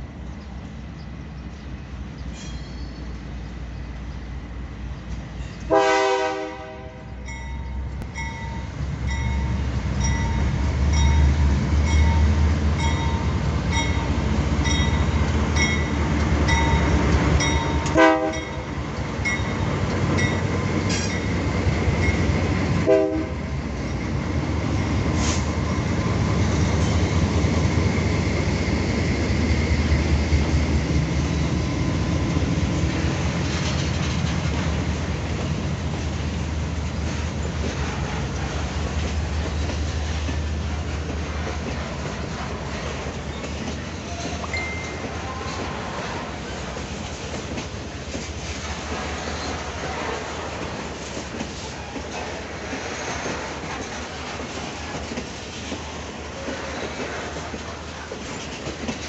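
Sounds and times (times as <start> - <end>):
diesel locomotive engine rumble: 0.0 - 59.0
train wheels rumbling on rails: 0.0 - 59.0
train horn blasts: 5.7 - 7.3, 17.8 - 18.7, 22.8 - 23.5.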